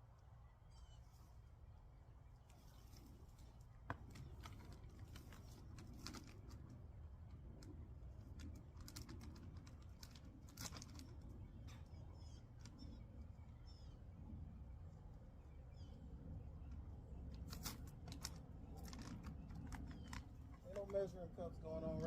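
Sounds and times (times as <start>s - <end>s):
faint bird chirps: 0.4s - 1.5s, 10.8s - 17.4s
hands working soil in a pot: 17.2s - 22.0s.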